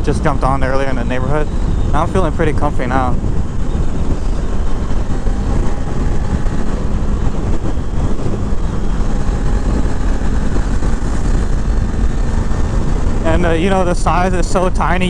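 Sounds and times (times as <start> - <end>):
motorcycle engine running: 0.0 - 15.0
wind rush over microphone: 0.0 - 15.0.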